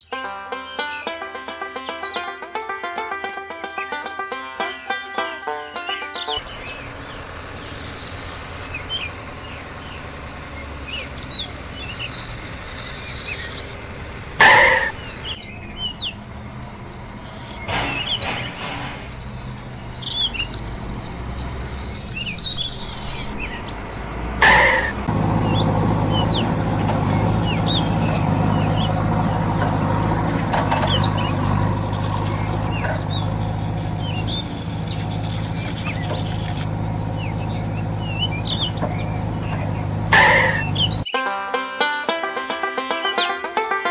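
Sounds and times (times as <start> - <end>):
small birds chirping: 5.8 - 41.2
heavy vehicle engine running: 6.3 - 41.1.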